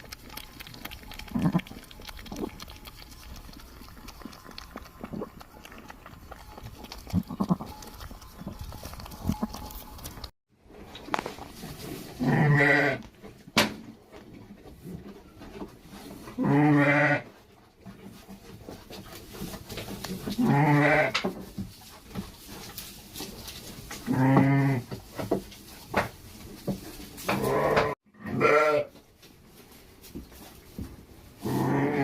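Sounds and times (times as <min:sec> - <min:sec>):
goat bleating: 0:01.2 - 0:01.8, 0:05.3 - 0:10.3, 0:12.2 - 0:13.0, 0:16.4 - 0:17.2, 0:20.4 - 0:21.2, 0:27.4 - 0:28.9.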